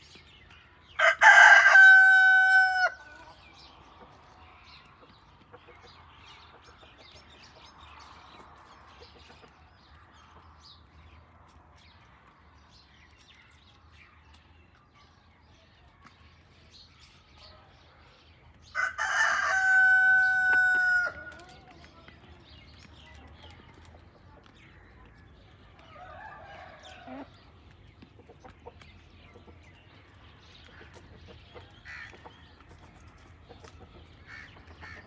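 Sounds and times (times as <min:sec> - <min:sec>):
rooster crowing: 0:01.0 - 0:03.1, 0:18.8 - 0:21.3
hens clucking: 0:26.7 - 0:29.9.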